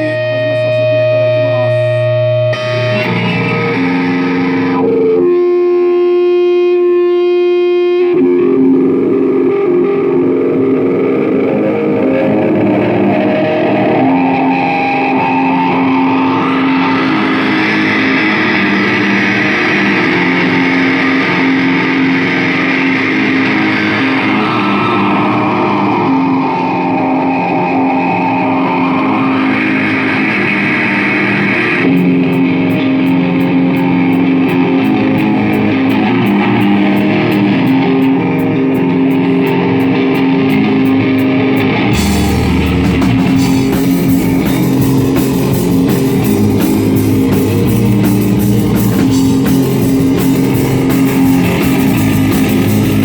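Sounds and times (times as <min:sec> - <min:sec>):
electric guitar chords: 0:00.0 - 0:53.0
rock band instrumental: 0:00.0 - 0:53.0
high ticking: 0:11.7 - 0:53.0.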